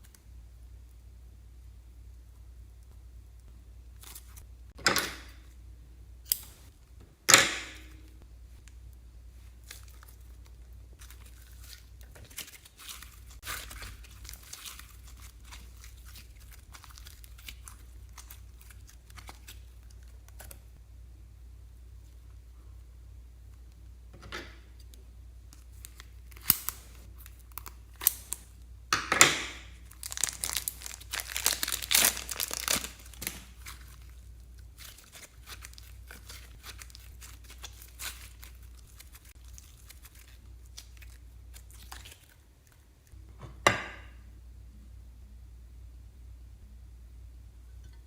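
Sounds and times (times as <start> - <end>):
slime and plastic bag crackling: 9.3 - 20.7, 25.5 - 28.7, 29.6 - 42.8.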